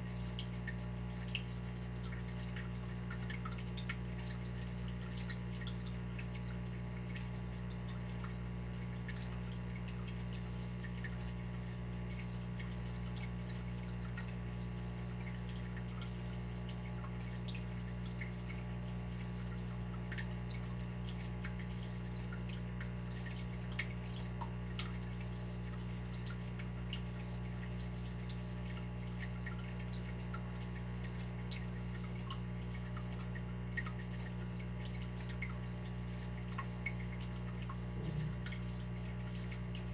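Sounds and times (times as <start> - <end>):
water dripping: 0.1 - 39.9
steady low hum: 37.9 - 39.9.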